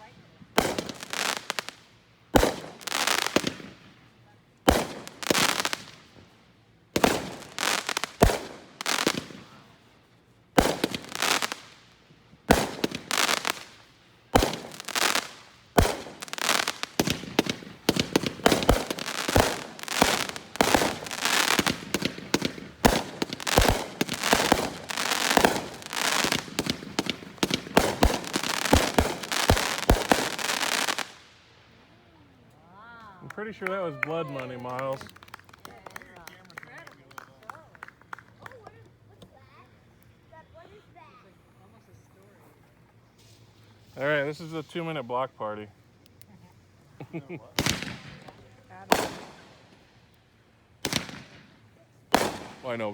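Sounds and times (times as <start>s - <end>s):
firework cake bangs and crackle: 0.0s - 4.0s, 4.6s - 9.8s, 10.5s - 31.2s, 47.4s - 49.9s, 50.8s - 52.9s.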